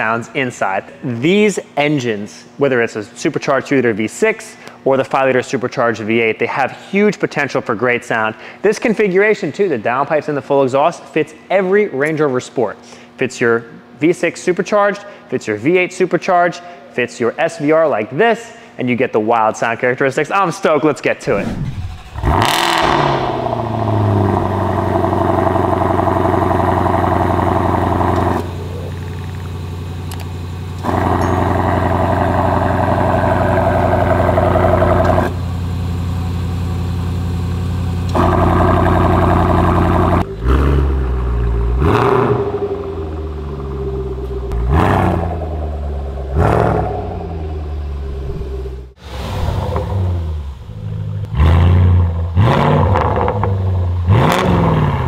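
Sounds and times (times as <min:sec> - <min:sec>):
engine revving: 0:21.3 - 0:35.4, 0:38.0 - 0:55.0
car engine cold start and idling: 0:21.3 - 0:55.0.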